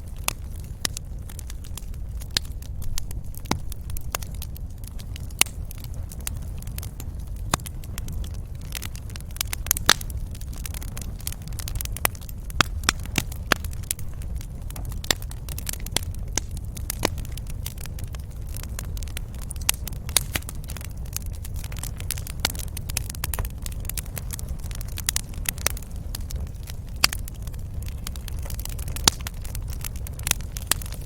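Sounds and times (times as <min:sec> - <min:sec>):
low rumble of flame: 0:00.0 - 0:31.0
wood fire crackling and popping: 0:00.0 - 0:31.0.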